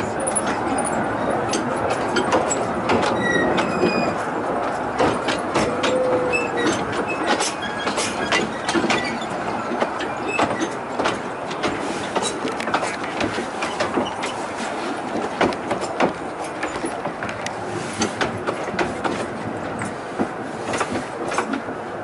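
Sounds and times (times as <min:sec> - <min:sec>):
clicks over rail joints: 0:00.0 - 0:22.0
train wheels rumbling on rail: 0:00.0 - 0:22.0
wheel squeals: 0:00.2 - 0:10.8.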